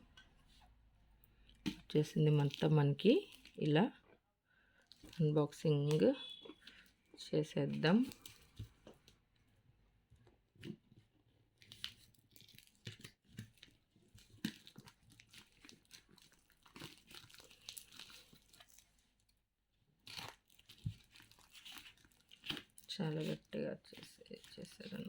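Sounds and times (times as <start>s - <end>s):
packaging tearing and crinkling: 11.6s - 19.0s, 20.0s - 25.0s.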